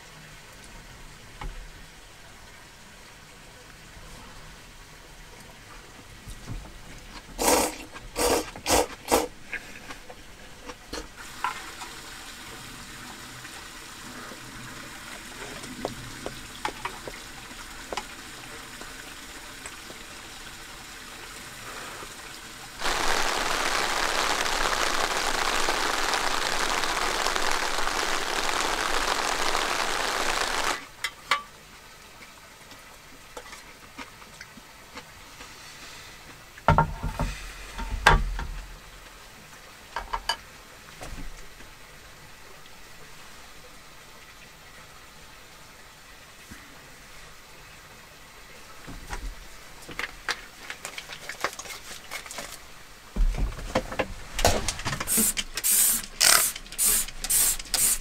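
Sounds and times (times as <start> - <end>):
rain falling: 0.0 - 35.5, 37.7 - 58.0
quiet eating sounds: 7.0 - 11.2.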